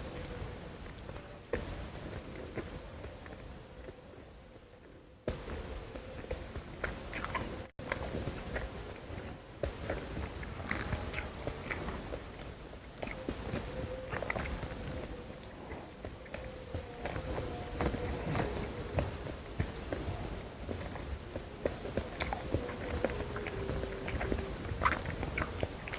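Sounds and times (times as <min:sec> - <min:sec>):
faint steady hum: 0:00.0 - 0:25.9
person chewing crunchy food: 0:05.3 - 0:25.9
wet mouth clicks: 0:06.8 - 0:08.7.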